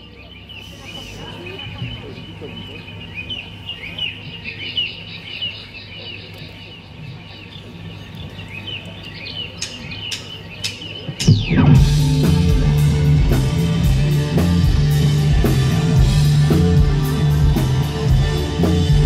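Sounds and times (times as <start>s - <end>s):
small birds chirping: 0.0s - 19.0s
high tone sweeping down: 11.2s - 19.0s
steady low hum: 11.2s - 19.0s.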